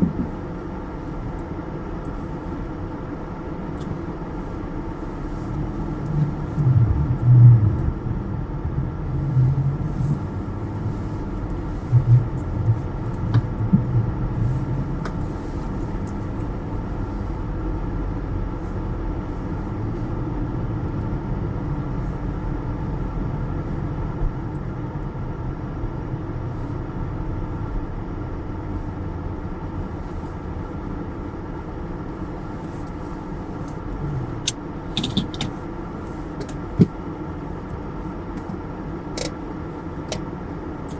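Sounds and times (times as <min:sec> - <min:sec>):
low bumps: 0:00.0 - 0:00.6, 0:05.0 - 0:16.4
car engine rumble inside cabin: 0:00.0 - 0:40.9.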